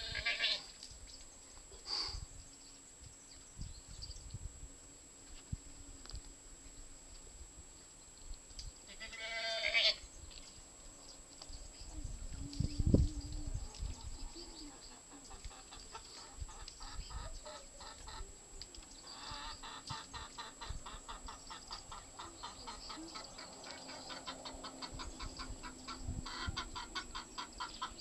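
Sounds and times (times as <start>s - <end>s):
chickens clucking softly: 12.5s - 28.0s.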